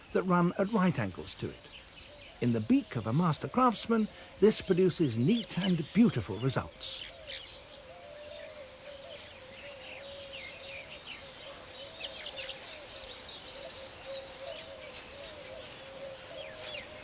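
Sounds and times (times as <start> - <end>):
birds chirping and chattering: 0.0 - 17.0.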